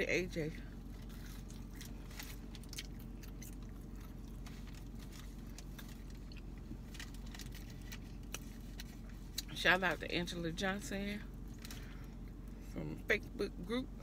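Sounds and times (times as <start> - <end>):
low car hum: 0.0 - 14.0
chewing mouth clicks: 1.1 - 6.5.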